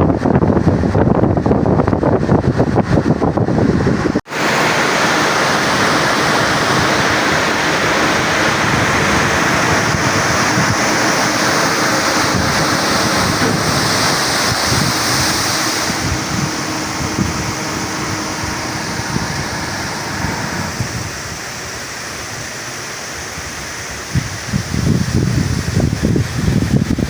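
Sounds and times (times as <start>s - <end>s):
wind on microphone: 0.0s - 27.0s
water rushing from spillway: 4.2s - 27.0s.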